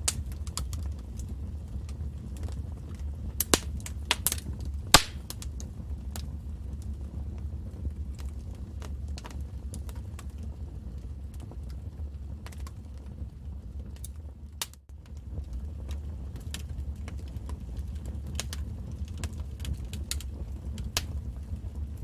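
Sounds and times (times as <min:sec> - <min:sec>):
wood fire crackling: 0:00.0 - 0:22.0
loud fire pop: 0:03.4 - 0:05.5, 0:20.9 - 0:21.2.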